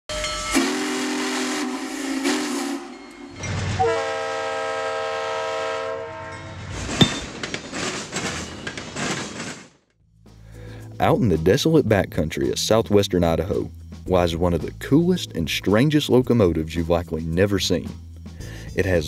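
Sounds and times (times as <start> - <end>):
diesel locomotive air horn: 0.1 - 6.7
steam locomotive whistle: 0.1 - 6.7
freight train rattling past: 0.1 - 9.5.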